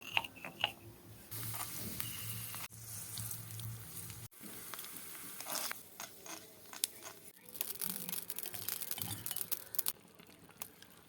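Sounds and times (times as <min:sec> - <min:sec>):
food sizzling in hot oil: 0:01.3 - 0:05.9.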